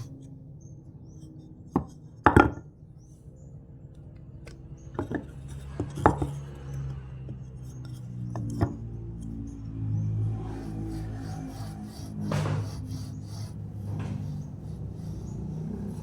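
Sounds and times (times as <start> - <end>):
sharp knocks of wood: 12.1 - 15.4.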